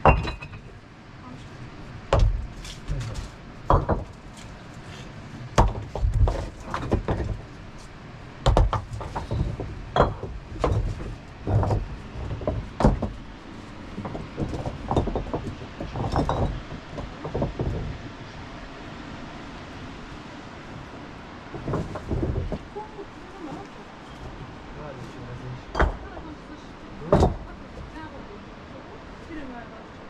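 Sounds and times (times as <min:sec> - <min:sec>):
sharp knocks and clinks: 0:00.0 - 0:00.8, 0:08.5 - 0:13.1, 0:14.0 - 0:17.9, 0:25.7 - 0:26.3
dull thuds: 0:08.4 - 0:13.3, 0:13.9 - 0:18.2, 0:21.5 - 0:22.7.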